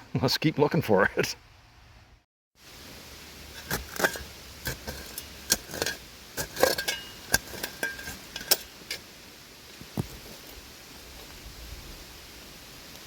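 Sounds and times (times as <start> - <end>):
digging tool scraping through glass: 3.6 - 9.0.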